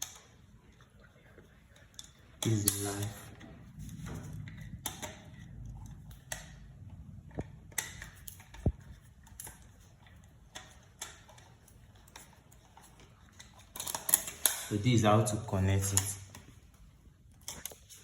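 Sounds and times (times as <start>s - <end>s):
low handling rumble: 2.7s - 10.5s.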